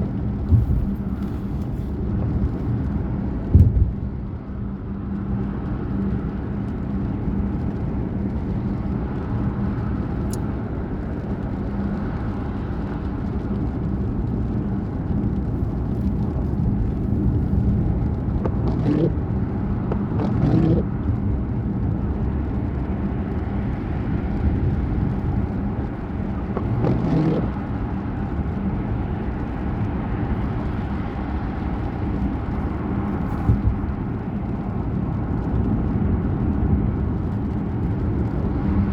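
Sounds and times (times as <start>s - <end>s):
car engine hum: 0.0s - 38.9s
road noise: 0.0s - 38.9s.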